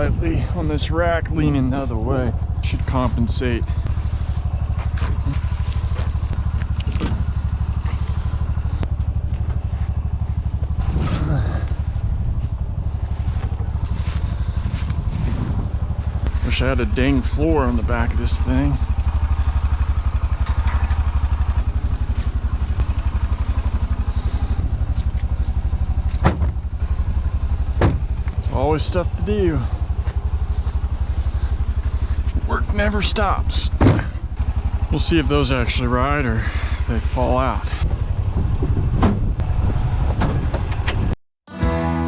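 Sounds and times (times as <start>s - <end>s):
utility vehicle engine running: 0.0s - 42.0s
knocks and clatters from cargo rack: 26.1s - 26.6s, 27.8s - 28.1s, 33.8s - 34.2s.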